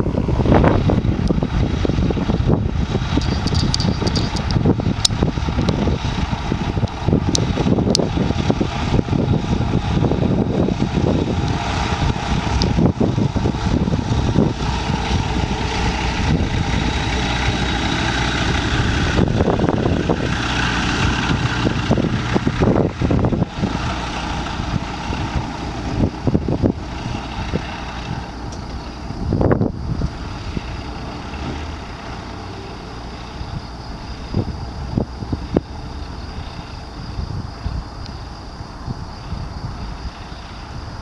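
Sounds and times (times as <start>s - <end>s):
propeller aircraft engine drone: 0.0s - 41.0s.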